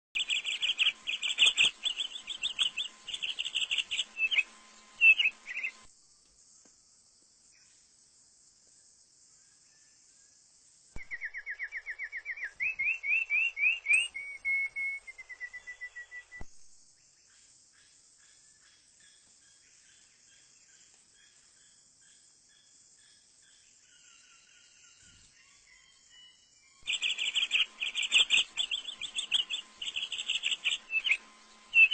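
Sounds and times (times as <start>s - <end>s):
bird chirping: 0.1s - 5.9s, 11.0s - 16.5s, 17.1s - 31.9s
high insect buzz: 0.2s - 8.0s, 26.8s - 31.9s.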